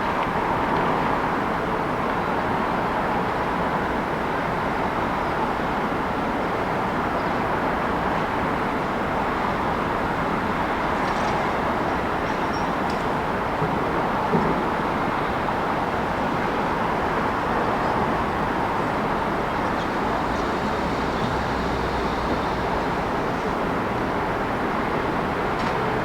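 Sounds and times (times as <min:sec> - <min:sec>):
city traffic noise: 0:00.0 - 0:26.0.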